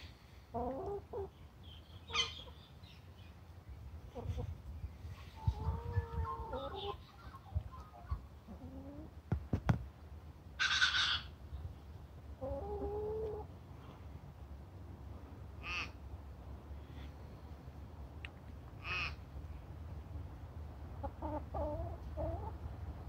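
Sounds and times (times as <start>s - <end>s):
bird harsh call: 15.6s - 16.0s.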